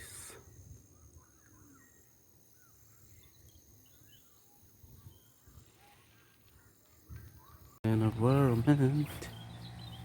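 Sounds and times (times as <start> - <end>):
soft bird chirps: 0.0 - 10.0.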